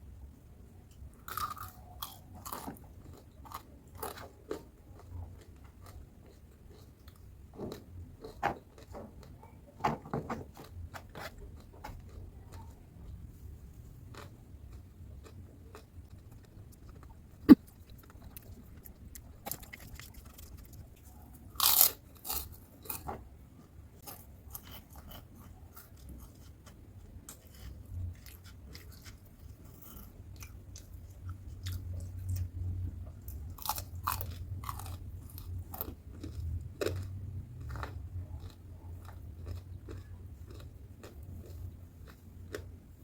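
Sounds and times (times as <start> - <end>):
crunchy food chewing: 1.2 - 9.6, 14.0 - 23.1, 24.0 - 42.8.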